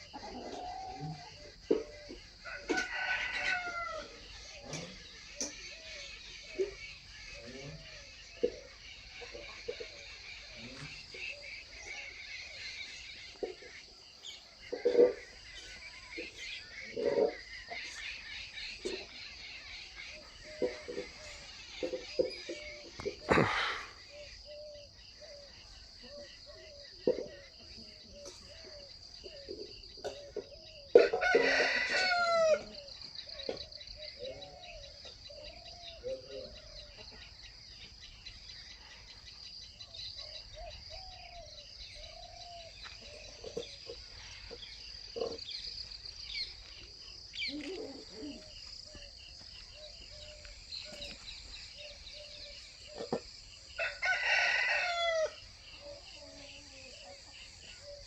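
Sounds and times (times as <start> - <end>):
chickens clucking: 0.0 - 58.0
rooster crowing: 2.3 - 4.3, 30.9 - 32.9, 53.8 - 56.0.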